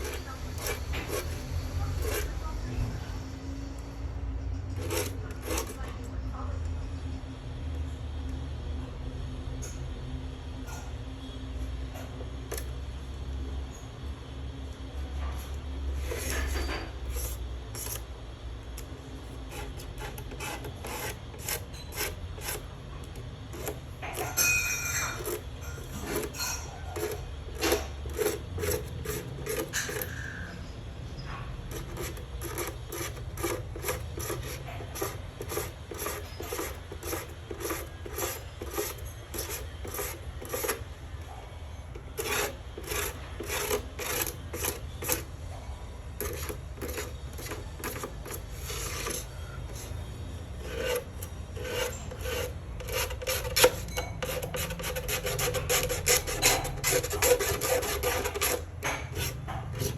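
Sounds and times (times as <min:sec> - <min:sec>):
scraping strokes: 0:00.0 - 0:02.7, 0:04.6 - 0:06.1, 0:16.0 - 0:18.1, 0:18.8 - 0:30.5, 0:31.7 - 0:45.3, 0:46.2 - 0:59.9.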